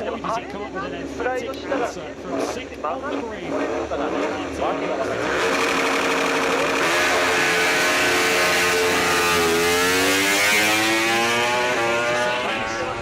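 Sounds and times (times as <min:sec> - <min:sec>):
racing motorcycles passing at high revs: 0:03.4 - 0:13.0.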